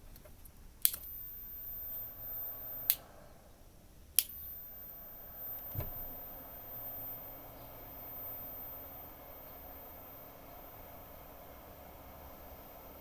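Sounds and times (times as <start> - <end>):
switch clicks: 0.0 - 3.1, 4.1 - 4.5
soft low thump: 5.7 - 6.2.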